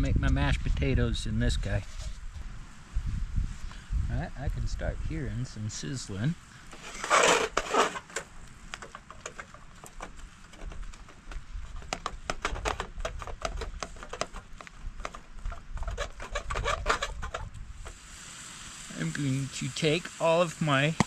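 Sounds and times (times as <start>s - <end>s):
burger patties sizzling in a pan: 17.9s - 21.0s.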